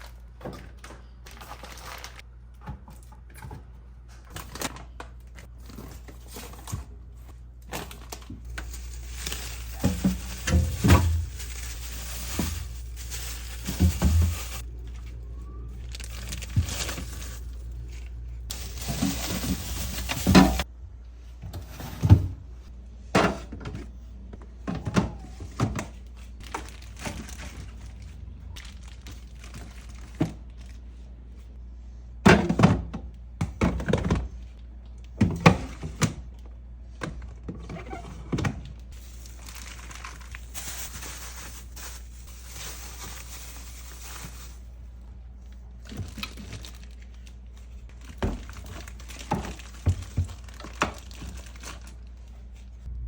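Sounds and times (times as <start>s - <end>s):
food containers thunking on shelves: 32.2s - 34.4s.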